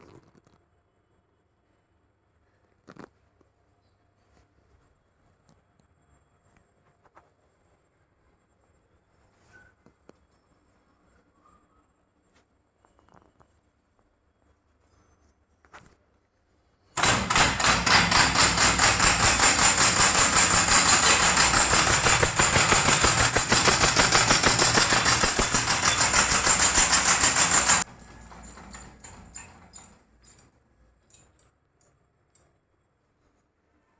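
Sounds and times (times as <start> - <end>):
solenoid engine clacking: 17.0 - 30.5.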